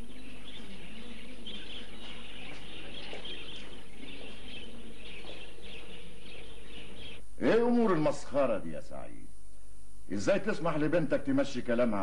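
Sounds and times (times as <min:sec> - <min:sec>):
small birds chirping and twittering: 0:00.0 - 0:09.1.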